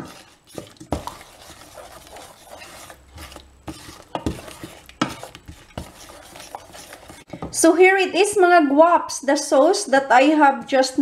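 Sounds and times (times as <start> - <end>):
spoon stirring liquid in a pan: 0.0 - 7.6.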